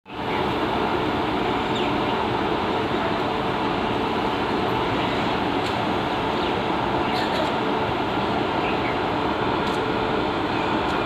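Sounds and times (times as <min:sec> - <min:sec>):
train wheels rumbling on rails: 0:00.1 - 0:11.0.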